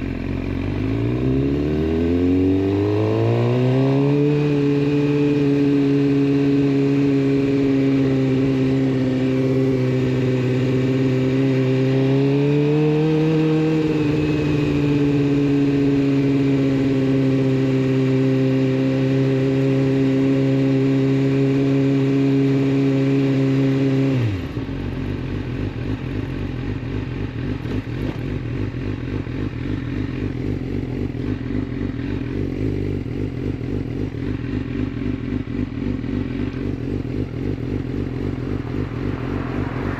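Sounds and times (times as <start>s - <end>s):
motorcycle engine lumpy idle: 0.0s - 0.9s, 24.6s - 39.1s
motorcycle engine revving: 0.0s - 39.9s.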